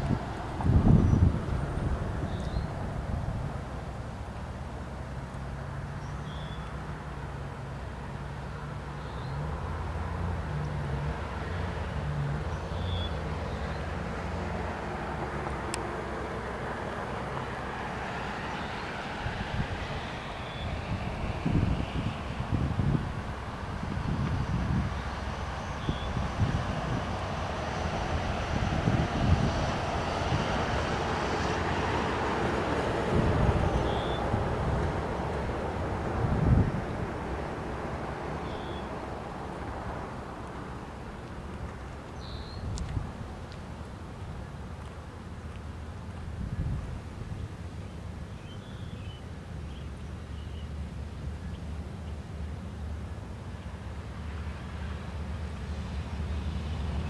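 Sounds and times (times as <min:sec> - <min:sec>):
wind buffeting microphone: 0:00.0 - 0:04.2, 0:17.8 - 0:43.6, 0:46.2 - 0:47.8
diesel locomotive engines rumbling: 0:00.0 - 0:57.0.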